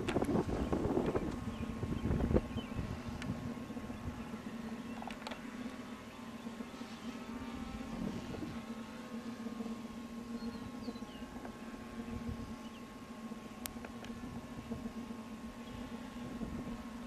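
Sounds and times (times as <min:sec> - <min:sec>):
wind rumbling on microphone: 0:00.0 - 0:05.4, 0:07.8 - 0:08.7, 0:16.2 - 0:17.0
model plane motor droning: 0:00.0 - 0:17.0.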